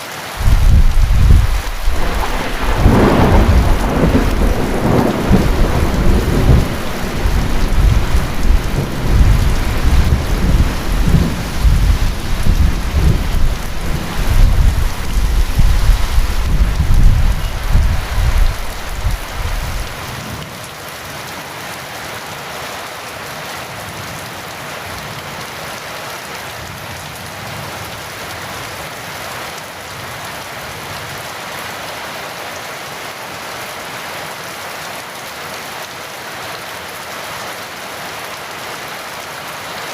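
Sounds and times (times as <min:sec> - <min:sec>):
heavy rain falling: 0:00.0 - 0:39.9
rolling thunder: 0:00.4 - 0:20.1.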